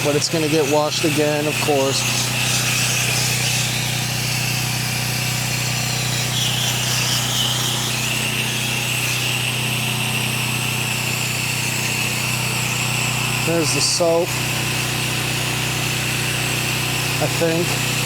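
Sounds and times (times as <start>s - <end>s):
water spray hissing: 0.0s - 9.5s
pressure washer humming: 0.0s - 18.0s.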